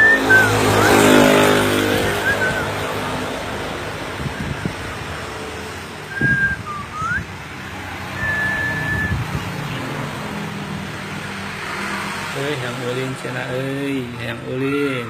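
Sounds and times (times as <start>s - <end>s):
bird whistling: 0.0s - 3.1s, 6.1s - 7.3s, 8.1s - 9.3s.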